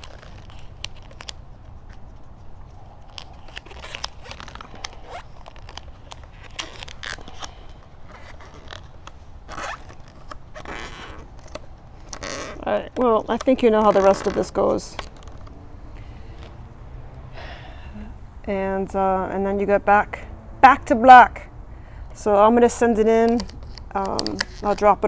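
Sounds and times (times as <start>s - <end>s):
vinyl film peeling off plastic: 0.0s - 15.8s, 23.3s - 25.0s.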